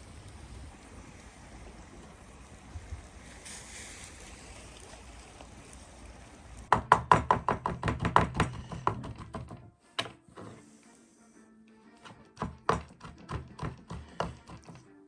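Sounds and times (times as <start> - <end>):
rapid sharp knocks: 6.7 - 10.1, 12.0 - 14.8.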